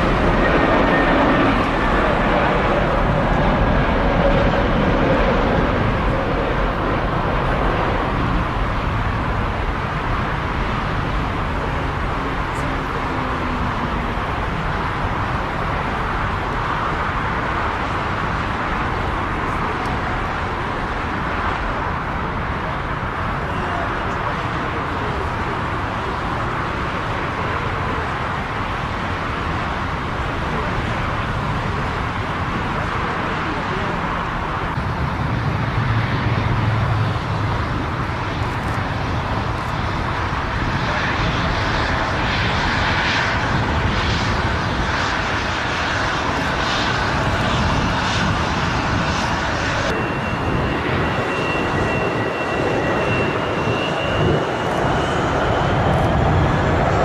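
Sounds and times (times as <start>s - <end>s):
jet engines rushing: 0.0s - 57.0s.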